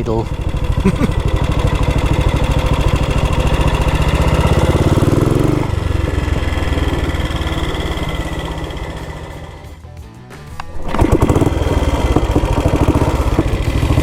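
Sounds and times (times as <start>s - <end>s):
motorcycle engine idling: 0.0s - 9.8s, 10.5s - 14.0s.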